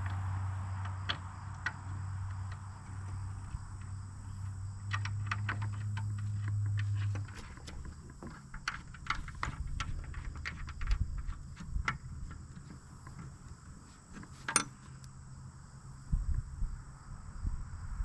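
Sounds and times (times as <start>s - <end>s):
metal tools clinking: 14.2s - 14.9s.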